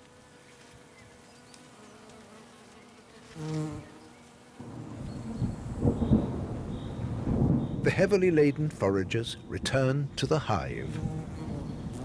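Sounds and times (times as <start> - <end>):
bee buzzing: 0.0 - 7.7, 10.4 - 12.0.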